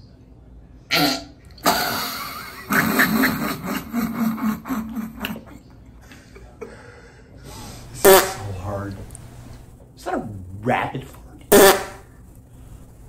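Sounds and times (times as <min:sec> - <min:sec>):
long rasping fart: 0:00.9 - 0:03.4, 0:08.0 - 0:08.7, 0:11.5 - 0:12.1.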